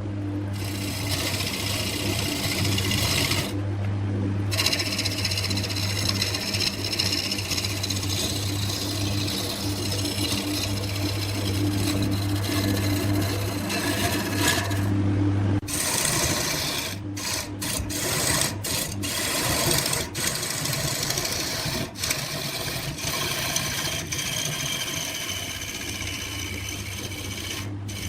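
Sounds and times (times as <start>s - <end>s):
tool scraping spinning wood: 0.0s - 3.6s, 4.4s - 15.0s, 15.6s - 28.0s
lathe motor hum: 0.0s - 28.0s.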